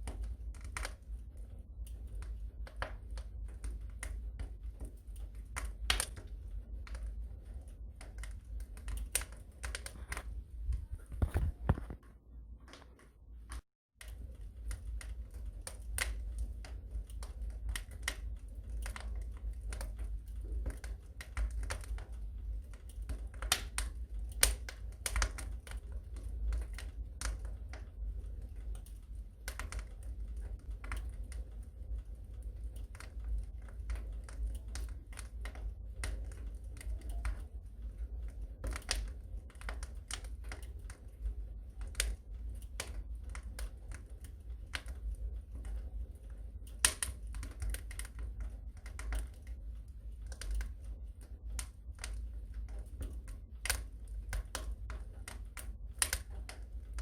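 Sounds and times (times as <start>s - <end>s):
low rumble: 0.0s - 12.6s
fire crackling: 0.0s - 57.0s.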